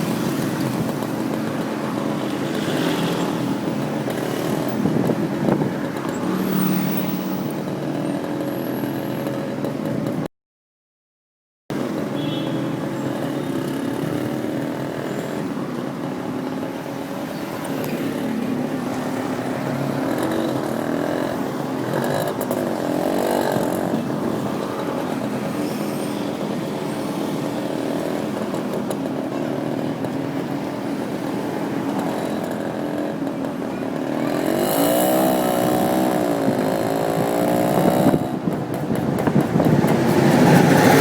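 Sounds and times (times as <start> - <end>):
motorcycle engine running: 27.3 - 41.0.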